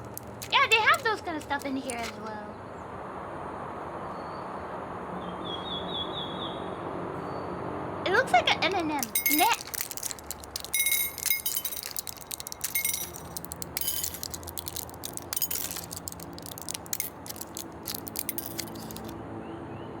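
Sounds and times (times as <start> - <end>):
light clinks and clicks: 0.0 - 2.3, 8.7 - 19.2.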